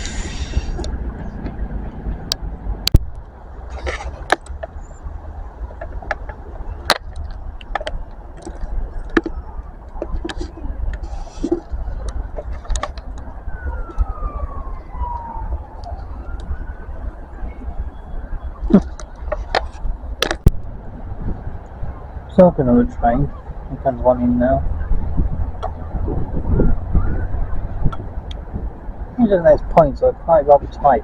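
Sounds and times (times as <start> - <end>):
short hisses: 0.0 - 0.8.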